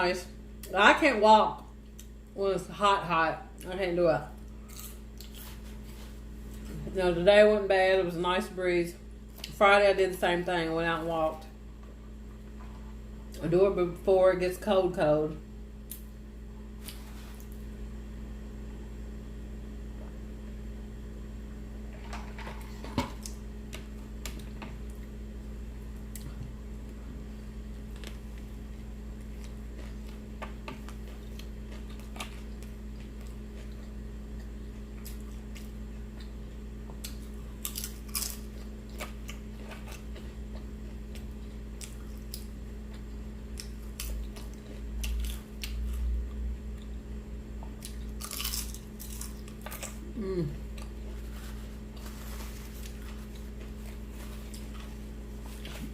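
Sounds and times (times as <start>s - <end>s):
low electrical hum: 0.0s - 55.9s
person chewing food: 4.4s - 6.9s, 27.7s - 47.0s, 47.6s - 55.9s.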